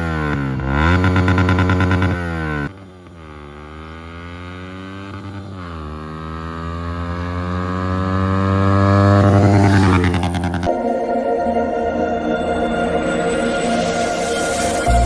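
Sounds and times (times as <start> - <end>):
motorcycle engine accelerating: 0.0 - 10.8.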